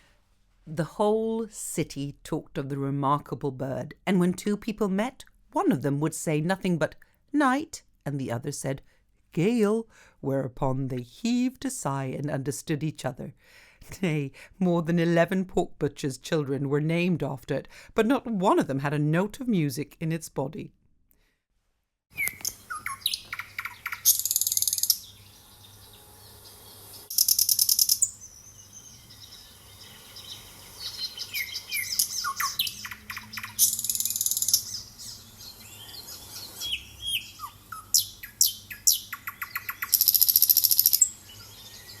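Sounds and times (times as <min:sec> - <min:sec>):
nightingale singing: 0:22.1 - 0:42.0.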